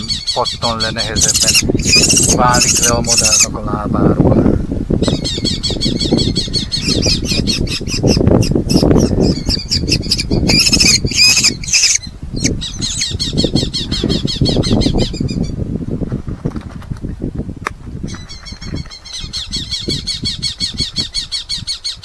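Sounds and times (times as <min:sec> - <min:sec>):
falcons calling shrilly: 0:00.0 - 0:03.6, 0:05.0 - 0:15.5
harsh falcon screams: 0:00.0 - 0:03.6, 0:05.1 - 0:15.2.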